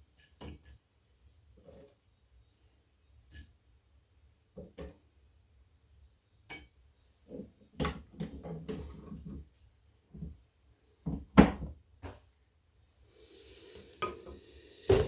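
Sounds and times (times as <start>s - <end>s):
kitchen knocks and clatters: 7.3s - 9.4s, 11.0s - 12.3s.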